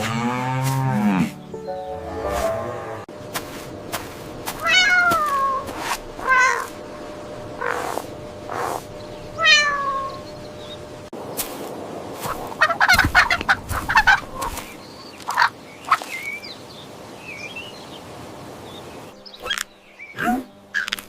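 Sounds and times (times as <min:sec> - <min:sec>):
cat meowing: 0:04.6 - 0:06.7, 0:09.4 - 0:10.2.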